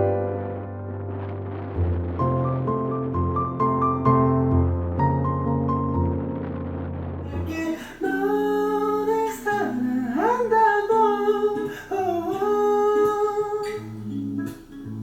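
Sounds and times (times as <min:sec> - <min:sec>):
plucked guitar: 0:00.0 - 0:15.0
person humming a melody: 0:07.3 - 0:14.0.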